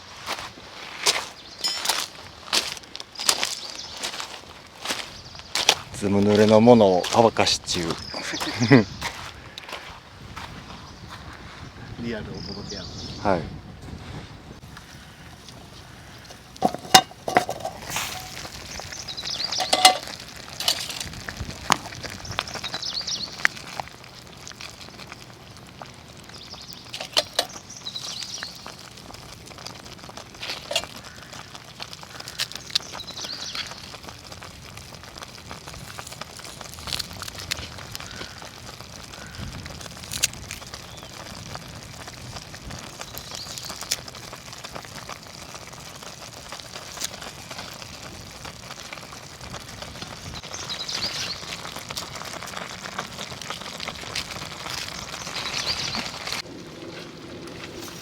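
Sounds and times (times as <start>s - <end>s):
fire crackles: 0.0s - 58.0s
food sizzling over campfire: 0.0s - 58.0s
clinks and knocks: 16.6s - 18.4s, 19.6s - 21.0s, 27.0s - 27.6s.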